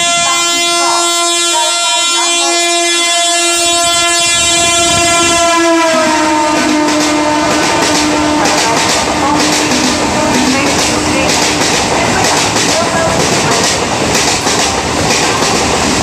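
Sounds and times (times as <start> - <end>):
train horn: 0.0 - 11.9
train wheels clattering over rails: 4.7 - 16.0.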